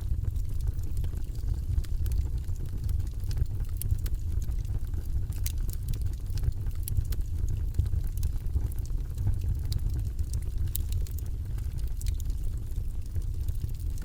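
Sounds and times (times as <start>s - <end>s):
fire crackling and popping: 0.0s - 14.0s
wood fire burning: 0.0s - 14.0s.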